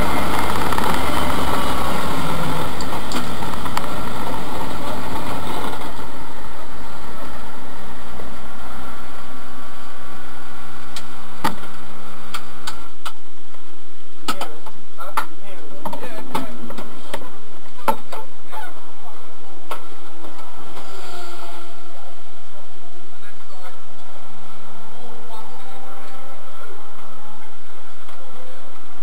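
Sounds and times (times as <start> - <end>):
race car engine idling: 0.0 - 11.4.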